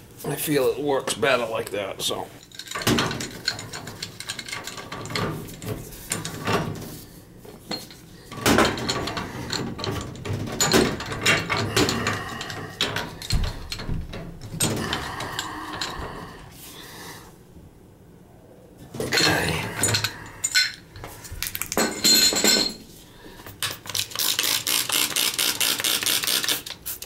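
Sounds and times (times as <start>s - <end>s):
wrenches clanking on metal pipe: 2.4s - 7.0s, 7.6s - 16.4s, 19.0s - 20.8s, 21.8s - 22.8s.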